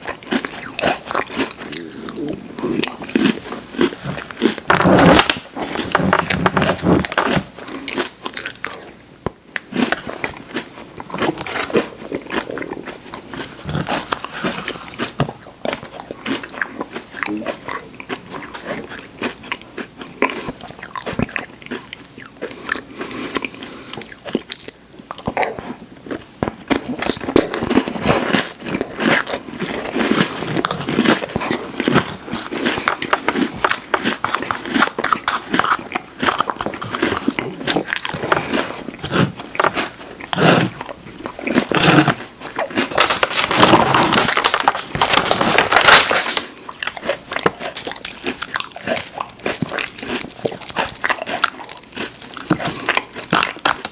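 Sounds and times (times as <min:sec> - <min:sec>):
crunchy cookie eating: 0:00.0 - 0:53.9.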